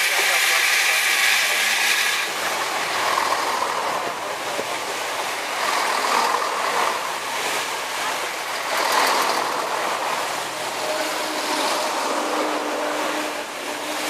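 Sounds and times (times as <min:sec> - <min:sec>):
train passing at speed: 0:00.0 - 0:14.0.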